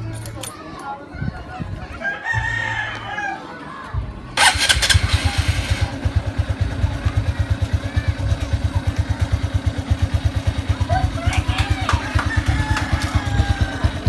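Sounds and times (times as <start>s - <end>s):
motorcycle engine starting and idling: 4.4s - 14.0s.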